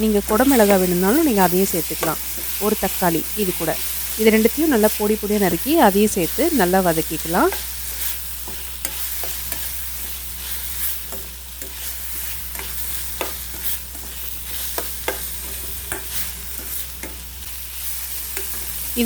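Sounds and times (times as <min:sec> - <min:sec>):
vegetables sizzling in oil: 0:00.0 - 0:19.0
utensil scraping and clicking on pan: 0:07.5 - 0:17.2, 0:18.2 - 0:18.9.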